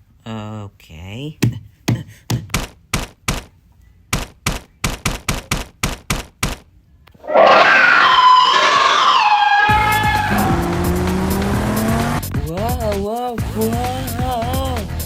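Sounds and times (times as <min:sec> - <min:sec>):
loud groaning cry: 0:07.2 - 0:11.1.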